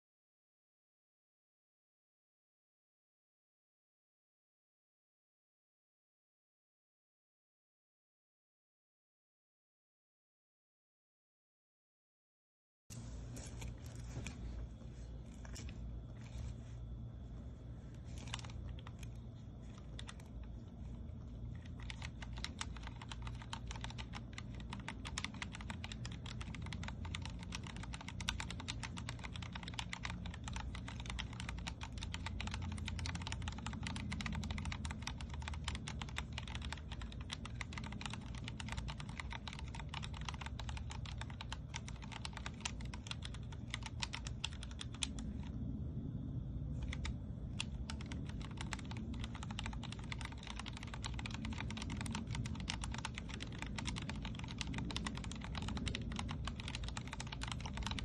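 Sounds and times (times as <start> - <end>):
mechanical keyboard key clacks: 21.6 - 45.3, 46.8 - 58.0.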